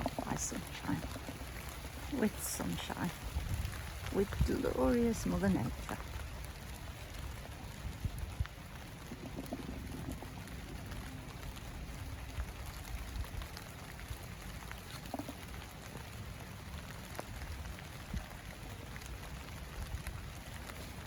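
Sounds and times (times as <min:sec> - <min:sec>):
heavy rain on leaves: 0:00.0 - 0:21.0.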